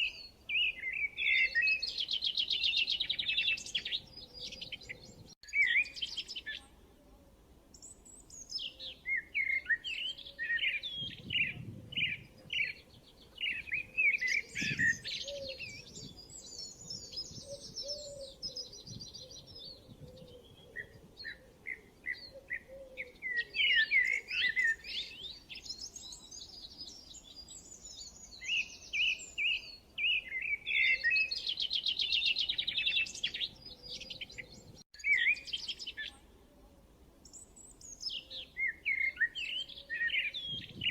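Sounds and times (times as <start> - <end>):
songbirds chirping and whistling: 0.0 - 6.8, 7.7 - 36.3, 37.2 - 40.9.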